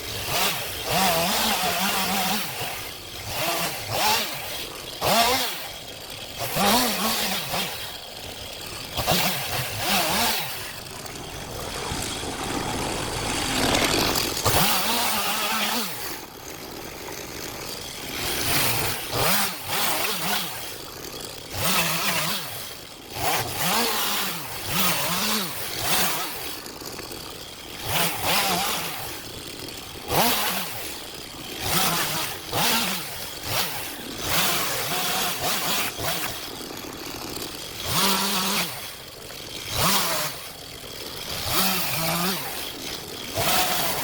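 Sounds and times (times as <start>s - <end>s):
chainsaw revving: 0.0s - 44.0s.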